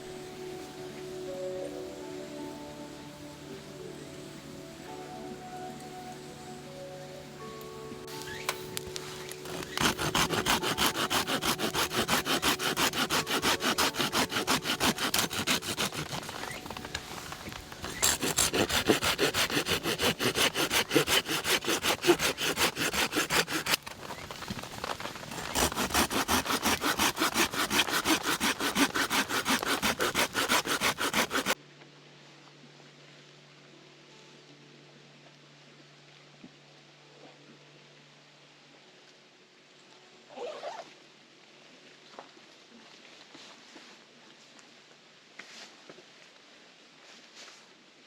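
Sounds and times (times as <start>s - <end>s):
hand saw cutting wood: 9.2s - 31.6s.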